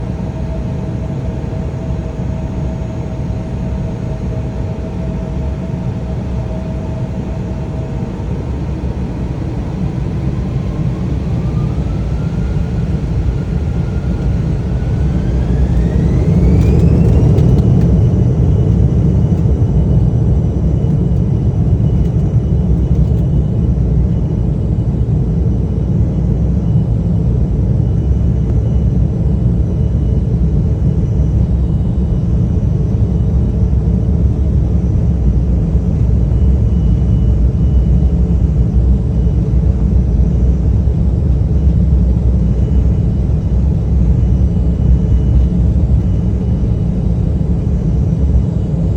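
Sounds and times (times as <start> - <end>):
jet engine whine: 0.0 - 48.9
takeoff roll rumble: 10.8 - 23.3.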